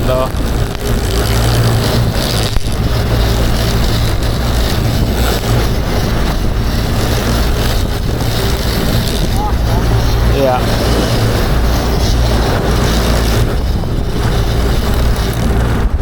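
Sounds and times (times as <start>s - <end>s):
boat engine running: 0.0s - 16.0s
water rushing: 0.0s - 16.0s
wind: 0.0s - 16.0s.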